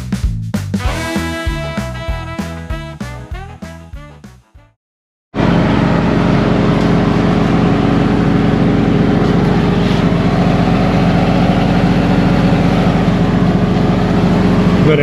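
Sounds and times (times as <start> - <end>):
engine running steadily: 5.4 - 15.0.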